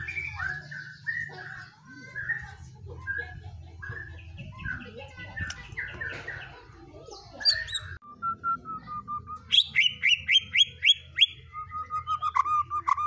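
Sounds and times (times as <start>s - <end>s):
songbird whistling notes: 7.4s - 13.0s.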